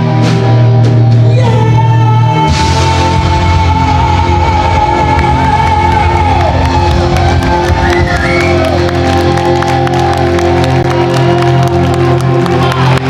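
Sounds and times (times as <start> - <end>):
live band playing loudly: 0.0 - 13.0
audience cheering and whooping: 4.8 - 13.0.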